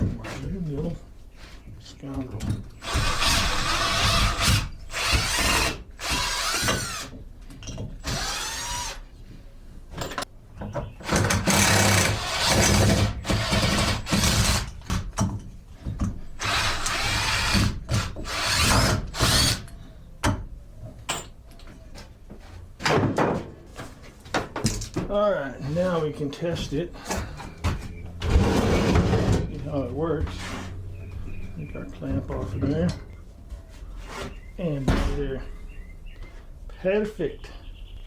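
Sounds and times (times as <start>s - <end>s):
screw gun driving screws into wood: 2.8s - 7.2s, 16.4s - 19.7s.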